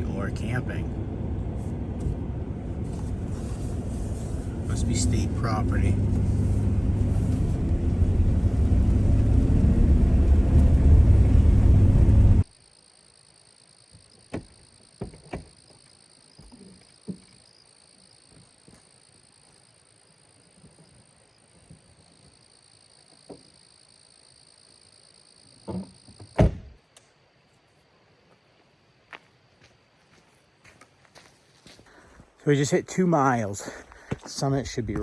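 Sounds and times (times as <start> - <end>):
van engine and tyres rumbling: 0.0 - 12.5, 31.9 - 35.0.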